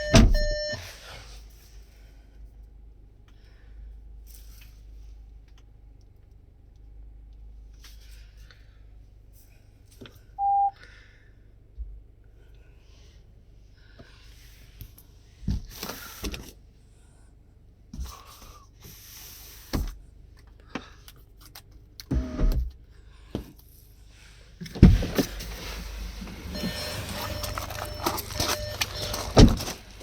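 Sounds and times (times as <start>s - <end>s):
car doors and controls clicking: 0.0s - 0.8s, 24.7s - 30.0s
heavy thump: 0.1s - 0.6s
brief motor whine: 26.2s - 29.2s.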